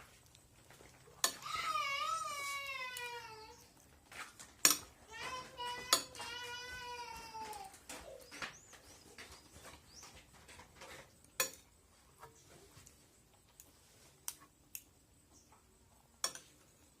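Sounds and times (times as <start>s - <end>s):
cutlery clicking against plate: 16.2s - 16.5s.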